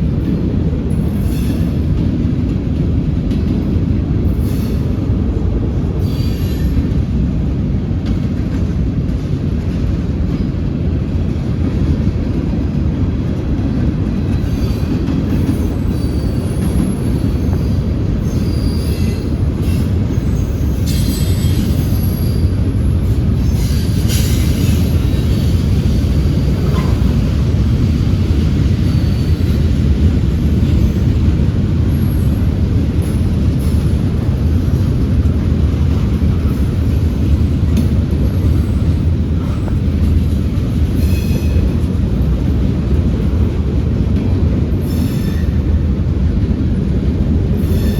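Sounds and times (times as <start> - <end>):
wheel squeals: 14.4 - 22.6.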